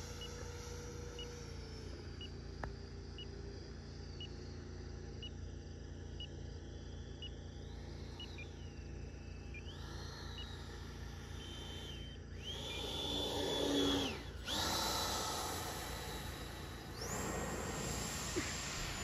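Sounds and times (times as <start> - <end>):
electric jet whine: 0.0 - 5.2, 7.4 - 19.0.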